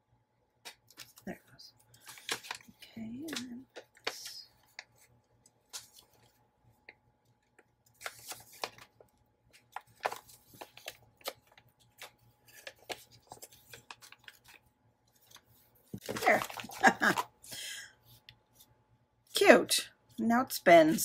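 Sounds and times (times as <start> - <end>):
paper rustling: 1.9 - 6.4, 7.9 - 17.3.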